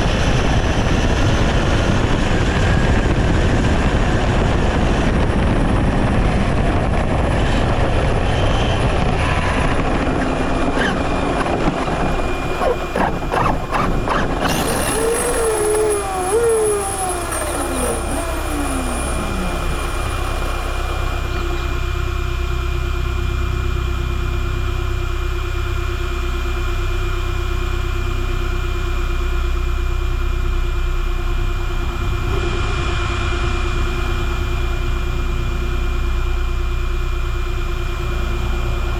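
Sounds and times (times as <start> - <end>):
rc car running: 8.7 - 22.1
steady hum with held tone: 10.4 - 38.9
falling whines: 10.6 - 22.3.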